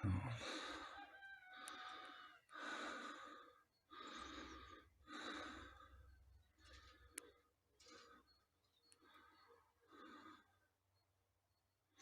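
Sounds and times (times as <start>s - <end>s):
person breathing softly: 0.3s - 10.8s.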